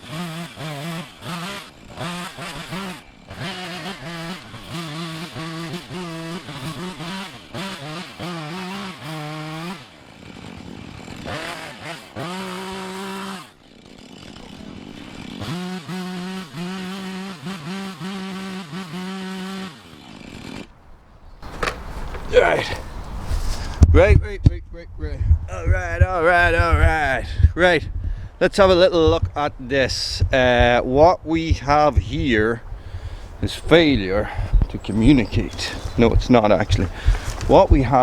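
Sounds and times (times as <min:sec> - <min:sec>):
chainsaw revving through cuts: 0:00.0 - 0:23.8, 0:32.5 - 0:38.0.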